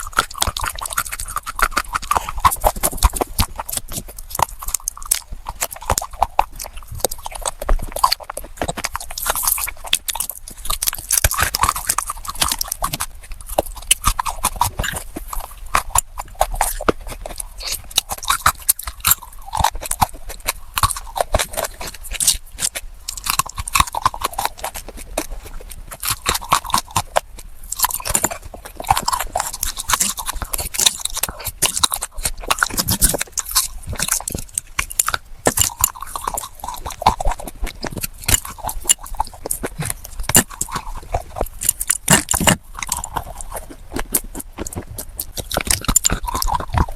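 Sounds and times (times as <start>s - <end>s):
chewing crunchy clay: 0.0s - 46.9s.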